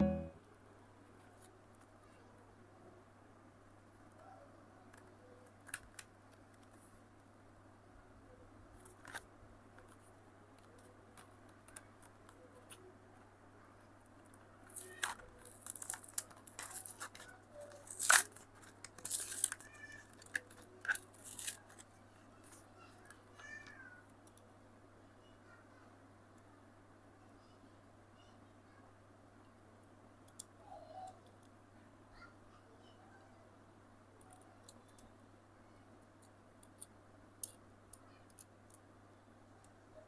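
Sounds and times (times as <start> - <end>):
packaging crinkling and tearing: 14.7 - 21.9.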